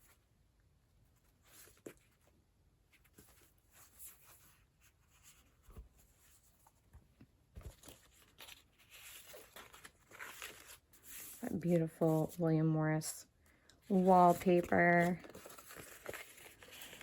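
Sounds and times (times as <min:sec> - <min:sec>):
soft knocks of book handling: 0:03.0 - 0:09.9
paper pages being turned: 0:07.6 - 0:12.4, 0:13.9 - 0:17.0.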